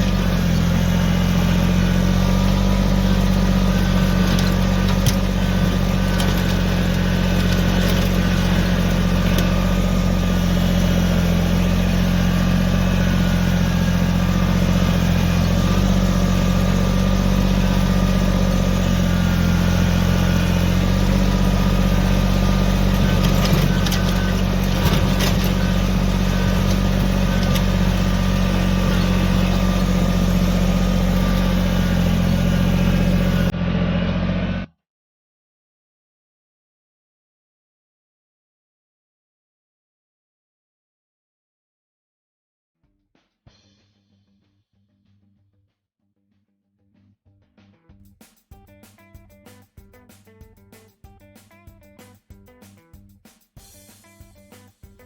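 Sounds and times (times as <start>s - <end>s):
tractor diesel engine running: 0.0s - 34.7s.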